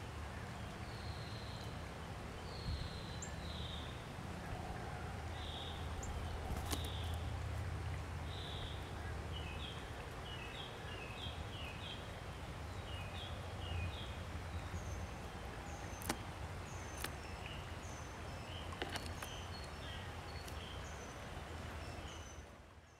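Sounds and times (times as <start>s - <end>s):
small birds chirping: 0.4s - 4.1s, 5.3s - 22.9s
sharp clicks: 16.0s - 16.2s.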